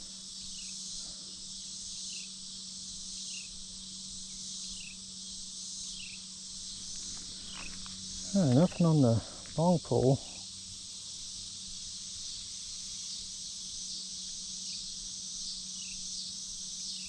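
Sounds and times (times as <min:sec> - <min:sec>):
insect chorus buzzing: 0:00.0 - 0:17.0
faint low hum: 0:06.4 - 0:10.4.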